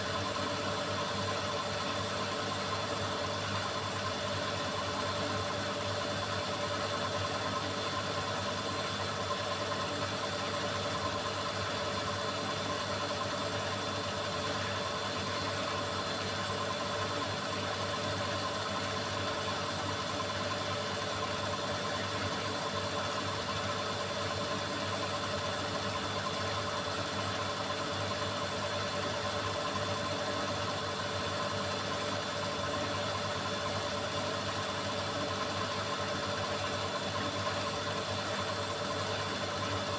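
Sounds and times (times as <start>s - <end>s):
washing machine spinning: 20.2s - 39.9s.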